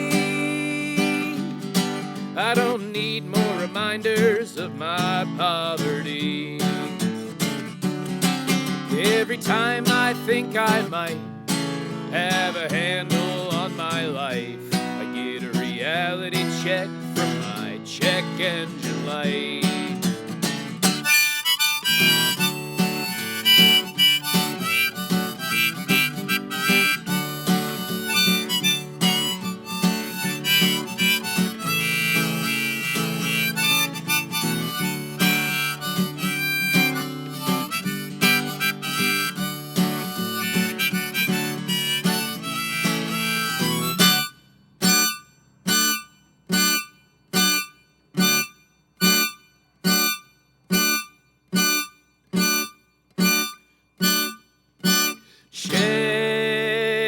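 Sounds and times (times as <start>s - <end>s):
harmonica lead: 0.0s - 57.0s
strummed acoustic guitar: 0.0s - 57.0s.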